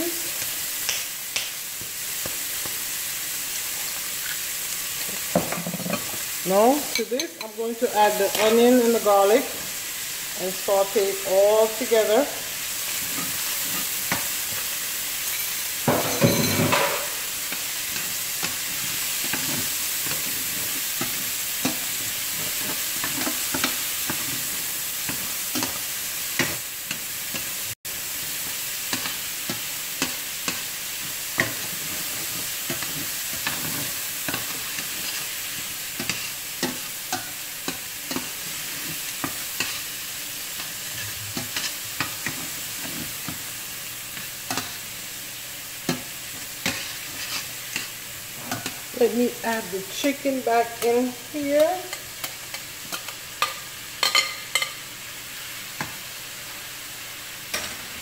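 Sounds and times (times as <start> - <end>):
food sizzling in a pan: 0.0 - 58.0
metal tongs scraping pan: 31.4 - 39.9, 40.6 - 43.4, 45.9 - 49.1.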